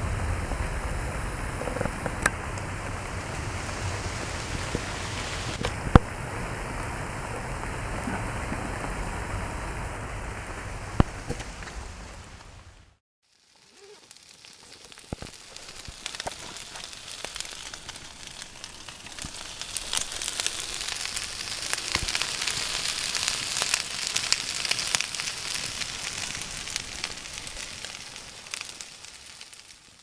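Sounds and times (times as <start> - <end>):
meat sizzling: 0.0 - 9.0, 13.2 - 30.0
fire crackling and popping: 0.0 - 30.0.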